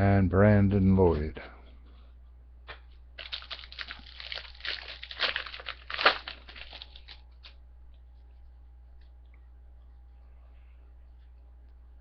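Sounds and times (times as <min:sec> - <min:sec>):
foil wrapper tearing and crinkling: 0:03.2 - 0:07.6.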